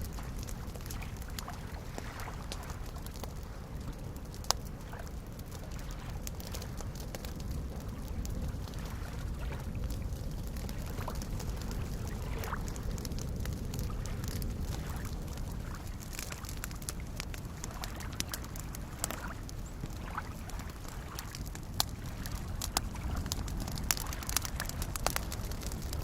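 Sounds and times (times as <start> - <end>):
campfire crackling and popping: 0.0 - 26.0
lake waves lapping: 0.0 - 26.0.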